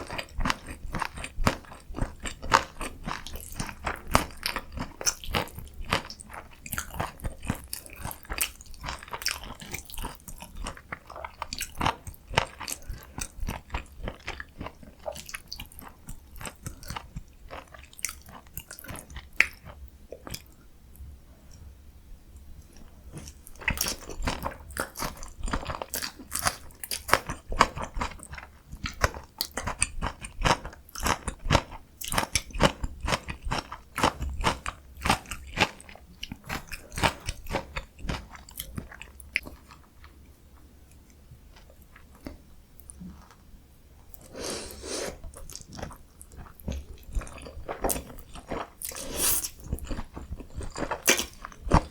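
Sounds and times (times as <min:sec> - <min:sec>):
person chewing food: 0:00.0 - 0:20.6, 0:22.7 - 0:40.3, 0:40.9 - 0:43.4, 0:44.1 - 0:51.9.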